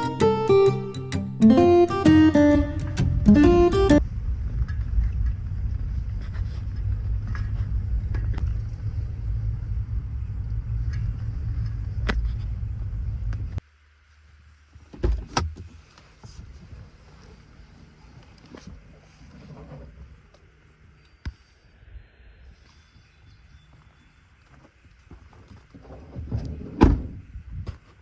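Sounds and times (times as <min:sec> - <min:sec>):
car driving rumble: 0:03.2 - 0:13.6.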